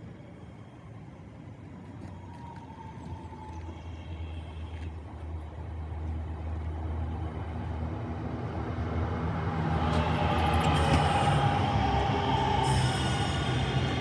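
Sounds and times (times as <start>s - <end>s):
train rumbling: 5.9s - 14.0s.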